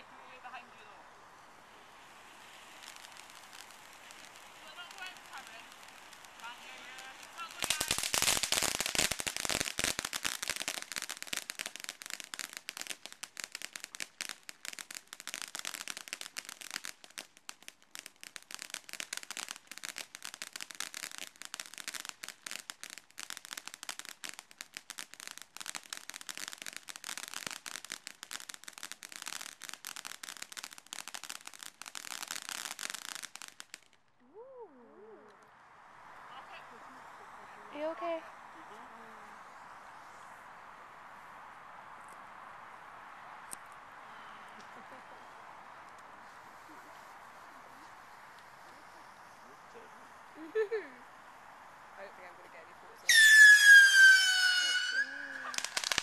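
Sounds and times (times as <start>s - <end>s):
firework crackling: 0.0s - 56.0s.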